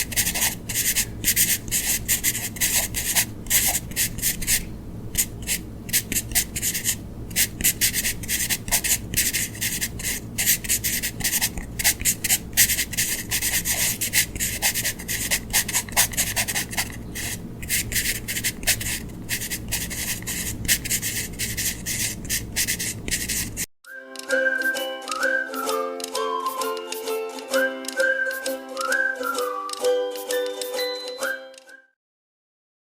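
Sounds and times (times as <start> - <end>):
colouring tool scratching paper: 0.0 - 23.7.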